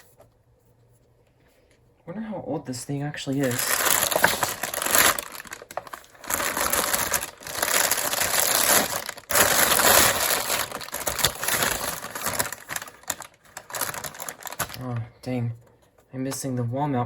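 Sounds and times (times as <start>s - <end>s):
packaging rustling and crinkling: 3.2s - 15.0s.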